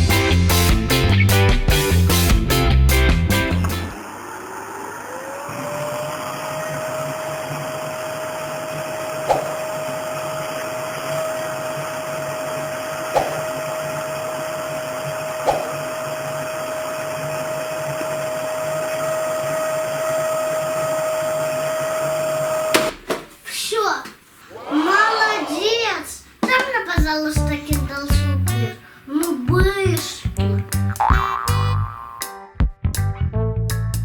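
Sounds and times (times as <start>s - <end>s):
toy vacuum motor whine: 4.0s - 9.2s.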